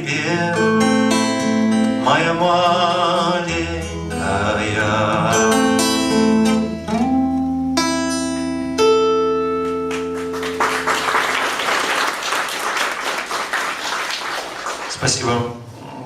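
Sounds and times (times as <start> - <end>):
acoustic guitar strummed chords: 0.0 - 10.9
audience applauding: 9.9 - 15.4.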